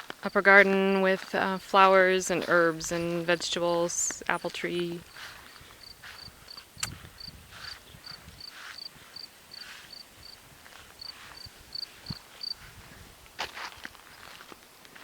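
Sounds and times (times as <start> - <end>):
footsteps through grass: 0.0 - 15.0
cricket chirping: 7.2 - 10.4.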